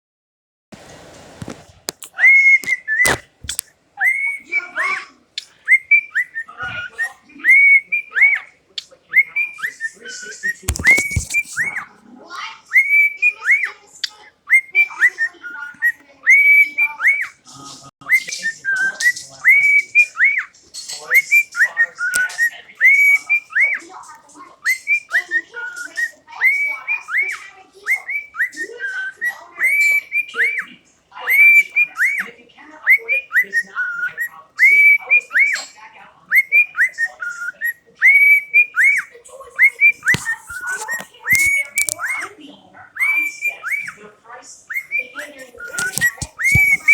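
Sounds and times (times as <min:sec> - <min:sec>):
soft bird chatter: 0:01.4 - 0:46.9
cockatiel whistling: 0:02.1 - 0:08.5, 0:09.1 - 0:11.9, 0:18.1 - 0:20.5, 0:24.6 - 0:42.3, 0:43.0 - 0:44.0, 0:44.7 - 0:46.9.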